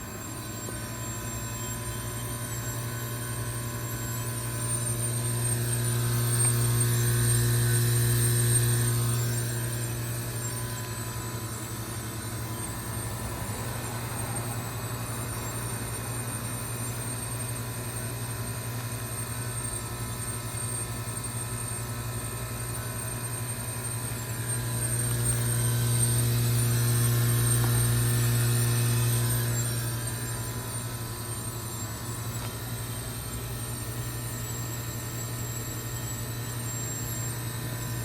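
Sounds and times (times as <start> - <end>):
heat pump humming: 0.0 - 38.0.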